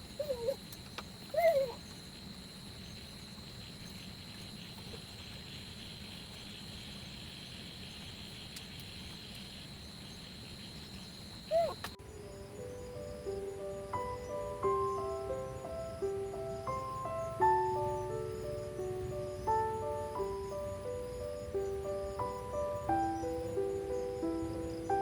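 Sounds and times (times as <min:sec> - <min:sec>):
high insect drone: 0:00.0 - 0:25.0
music: 0:12.0 - 0:25.0.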